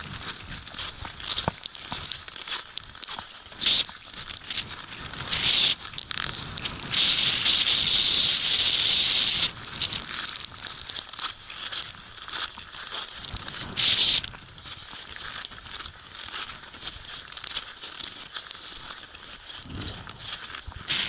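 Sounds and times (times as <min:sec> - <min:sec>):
rustling: 0:00.0 - 0:21.0
blizzard wind hissing: 0:19.6 - 0:21.0.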